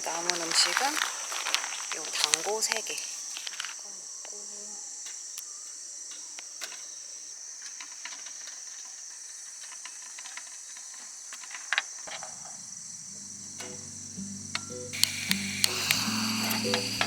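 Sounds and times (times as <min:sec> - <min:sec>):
crickets chirring: 0:00.0 - 0:17.0
soft music: 0:12.9 - 0:17.0.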